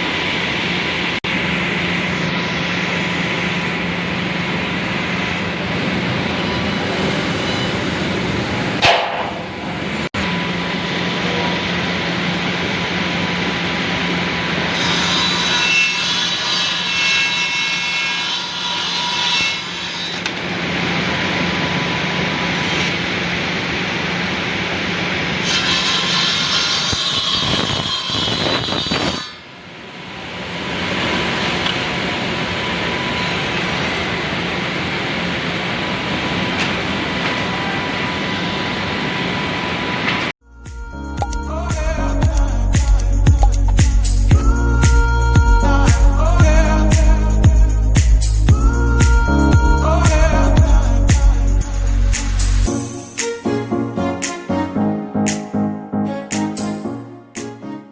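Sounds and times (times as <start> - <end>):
machine humming: 0.0 - 16.9, 29.8 - 56.9
saw blades cutting wood whine: 0.0 - 24.0, 24.8 - 39.9.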